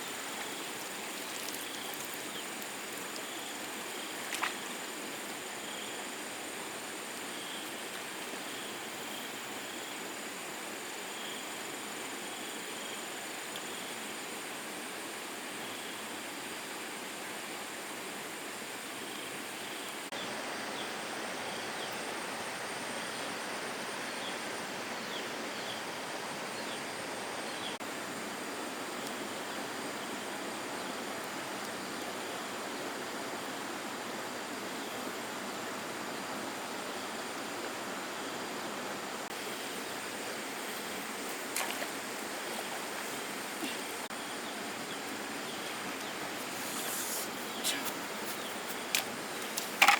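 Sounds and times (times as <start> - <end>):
flowing water rushing: 0.0 - 12.2, 16.0 - 49.9.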